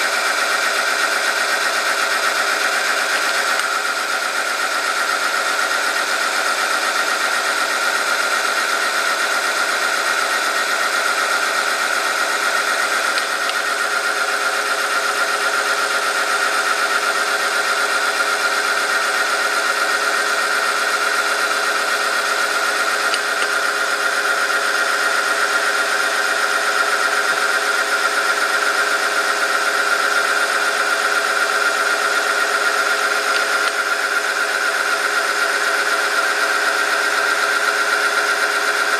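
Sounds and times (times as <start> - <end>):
test machine high whine: 0.0 - 38.9.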